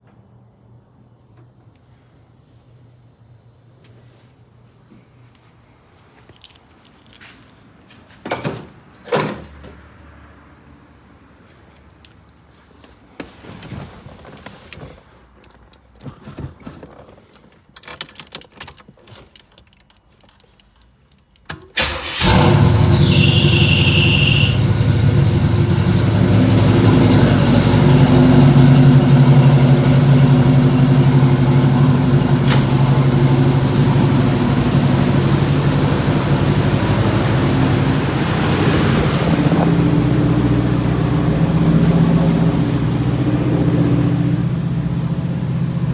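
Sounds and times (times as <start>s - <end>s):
car engine cranking and starting: 15.7s - 45.9s
car engine idling: 21.8s - 45.9s
high squeal: 22.2s - 33.6s.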